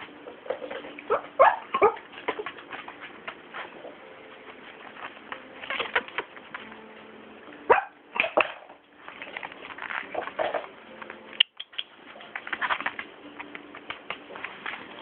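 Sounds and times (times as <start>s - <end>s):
puppy scuffling: 0.0s - 7.9s, 12.0s - 15.0s.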